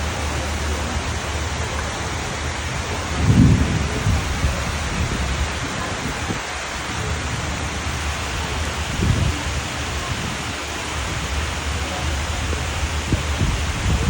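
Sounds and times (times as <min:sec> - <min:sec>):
steady rain falling: 0:00.0 - 0:14.0
low rumble: 0:02.5 - 0:06.4.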